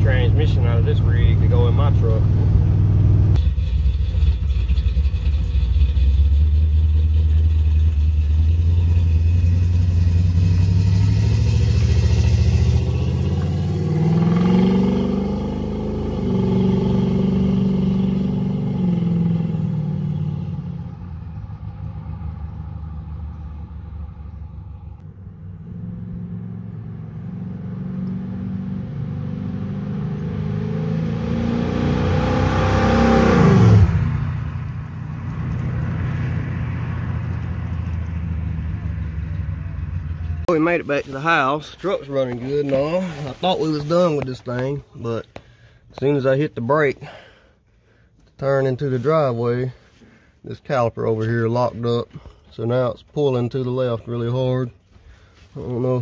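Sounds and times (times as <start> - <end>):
vee eight engine accelerating: 0.0 - 40.5.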